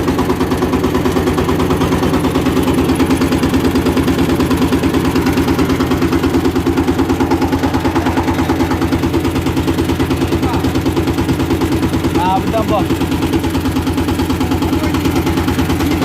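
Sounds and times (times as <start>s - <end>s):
diesel engine chugging: 0.0s - 16.0s.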